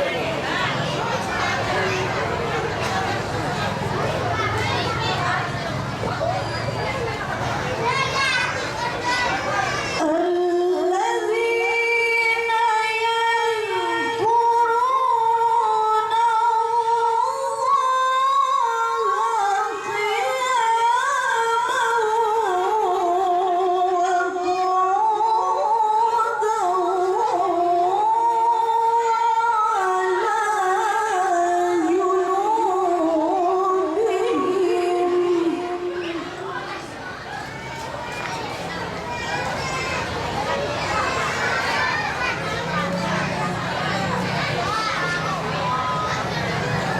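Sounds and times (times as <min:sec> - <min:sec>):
woman reciting melodiously: 0:09.9 - 0:36.9.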